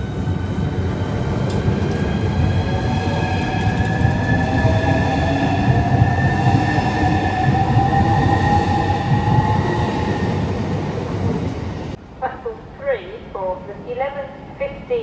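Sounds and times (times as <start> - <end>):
train wheels rumbling: 0.0 - 12.0
train whine: 0.0 - 12.0.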